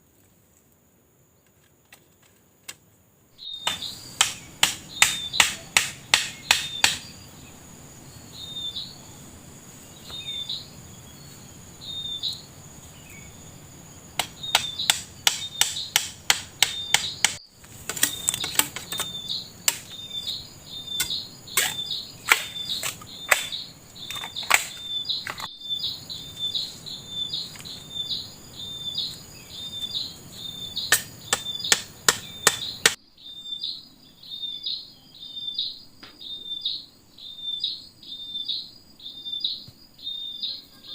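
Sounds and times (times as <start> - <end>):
bird chirping: 3.4 - 40.9
high insect whine: 3.4 - 40.9
rapid sharp knocks: 3.6 - 7.0, 14.2 - 19.1, 21.0 - 23.6.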